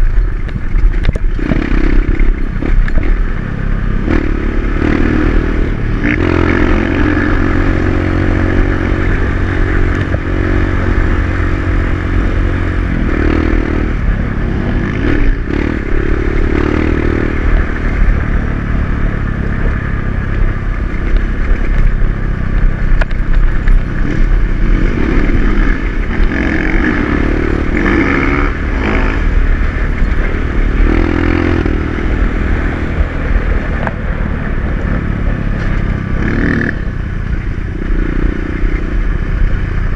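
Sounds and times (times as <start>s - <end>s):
dirt bike engine revving: 1.4s - 37.0s
scraping and rattling on rough ground: 19.4s - 31.7s.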